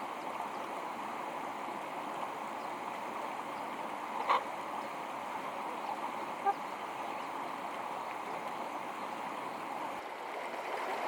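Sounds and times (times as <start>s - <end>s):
stream flowing: 0.0s - 11.0s.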